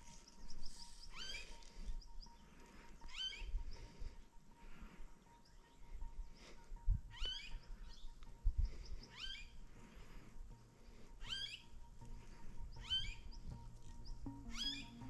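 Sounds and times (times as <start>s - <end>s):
bird calling: 0.0s - 3.9s, 7.1s - 8.2s, 9.0s - 9.6s, 11.2s - 15.0s.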